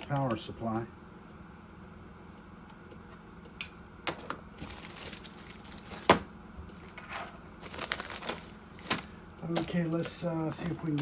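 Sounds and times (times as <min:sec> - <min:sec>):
clicks and knocks of handled parts: 0:06.9 - 0:11.0.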